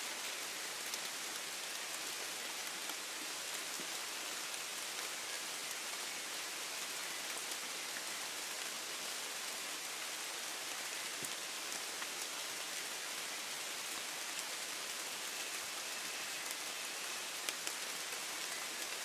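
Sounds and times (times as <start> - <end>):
rain hiss: 0.0 - 19.0
raindrop ticks: 17.4 - 18.6.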